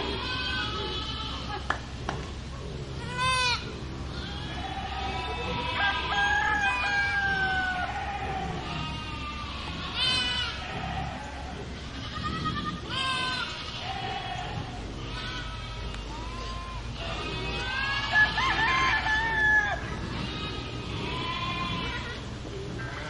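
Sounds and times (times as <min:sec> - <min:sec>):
rooster crowing: 0:04.5 - 0:08.9, 0:17.6 - 0:20.1.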